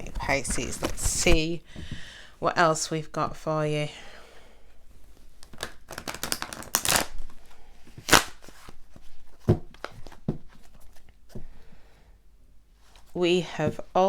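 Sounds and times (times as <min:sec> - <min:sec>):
cards riffling: 0:05.4 - 0:07.4, 0:08.0 - 0:08.8.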